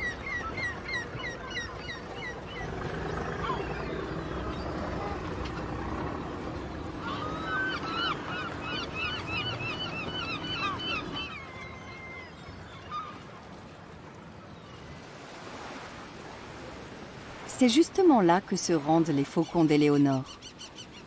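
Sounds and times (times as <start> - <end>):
birds calling: 0.0 - 13.5
low engine rumble: 2.5 - 11.2.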